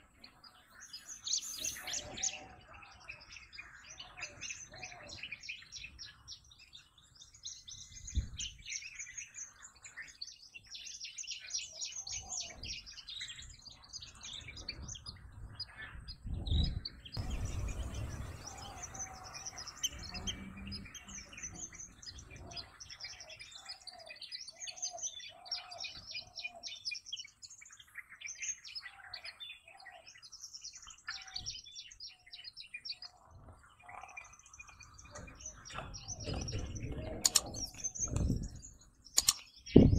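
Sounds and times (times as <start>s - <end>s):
birds chirping and twittering: 0.0s - 39.9s
low bird call: 15.7s - 27.4s.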